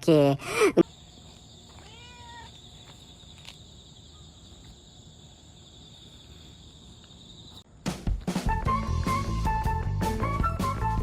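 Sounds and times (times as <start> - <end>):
crickets trilling: 0.1 - 7.8.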